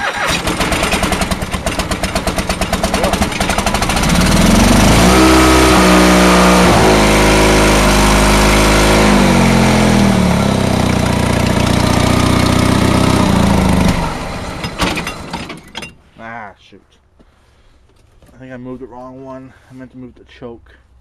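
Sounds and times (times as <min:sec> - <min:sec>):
engine revving and idling: 0:00.0 - 0:15.3.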